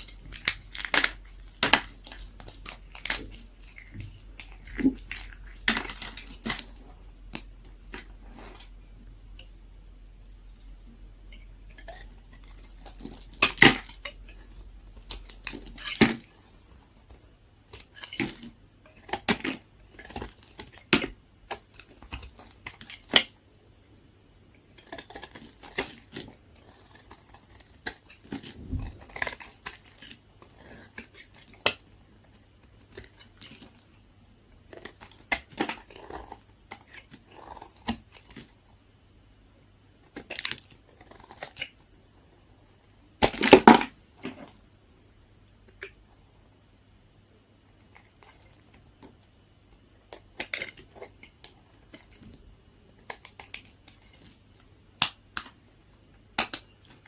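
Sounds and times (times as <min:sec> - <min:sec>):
dry soap cracking when cut: 0:00.0 - 0:08.1, 0:24.8 - 0:31.9, 0:34.7 - 0:38.6, 0:40.0 - 0:41.8, 0:53.0 - 0:54.3, 0:55.0 - 0:55.6, 0:56.3 - 0:57.0.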